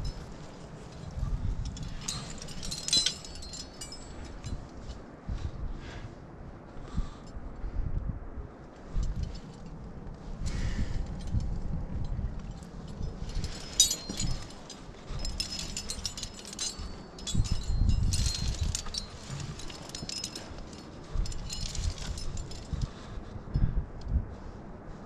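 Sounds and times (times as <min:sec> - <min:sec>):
metal climbing gear clinking: 0:00.0 - 0:05.4, 0:08.7 - 0:24.2
rubbing and handling noise: 0:12.6 - 0:22.9.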